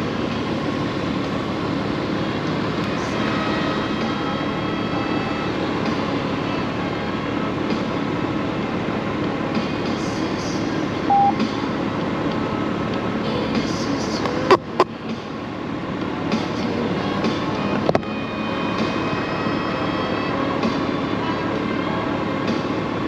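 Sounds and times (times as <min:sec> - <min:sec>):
motorcycle engine drone: 0:00.0 - 0:23.0
short beep: 0:11.1 - 0:11.4.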